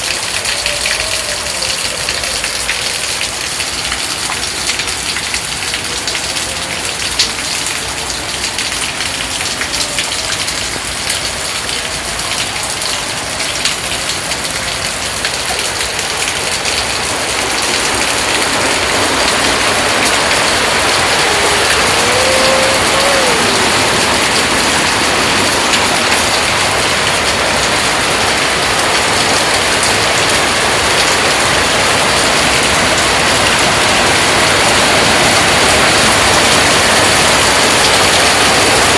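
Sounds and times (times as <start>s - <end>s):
rain splashing on hard surfaces: 0.0s - 38.9s.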